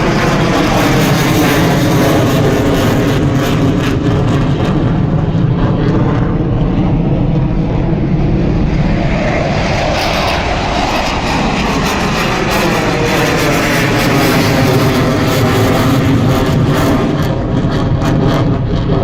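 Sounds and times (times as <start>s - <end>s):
military aircraft flying past: 0.0s - 19.0s.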